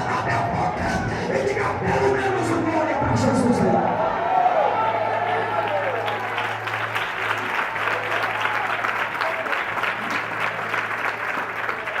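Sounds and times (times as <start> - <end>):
crowd clapping: 4.8 - 12.0.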